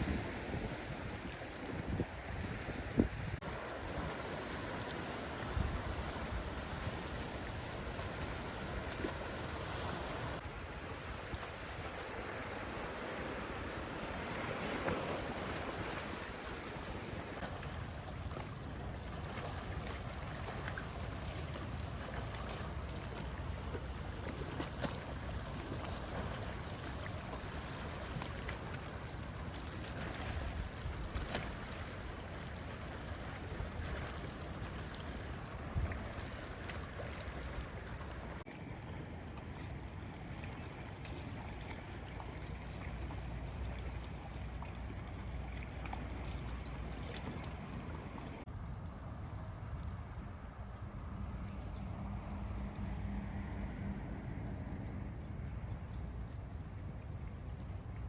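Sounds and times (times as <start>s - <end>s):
wind rumbling on microphone: 0.0s - 44.3s
sea waves washing on shore: 0.0s - 48.5s.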